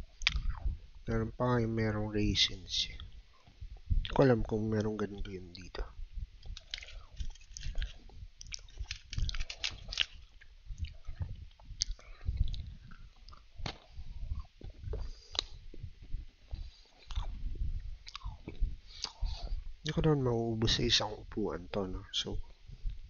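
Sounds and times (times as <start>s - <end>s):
soft mouth sounds: 0.1s - 0.8s, 6.4s - 15.7s, 16.5s - 19.6s
crunching cookies: 6.4s - 15.6s.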